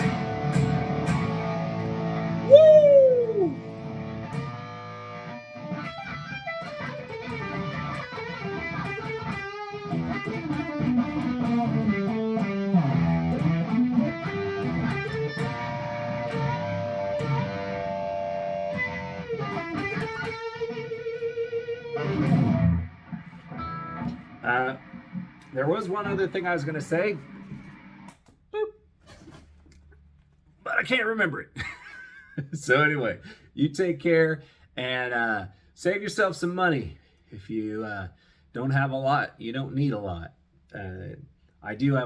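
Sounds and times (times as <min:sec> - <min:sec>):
distorted electric guitar: 0:00.0 - 0:28.1.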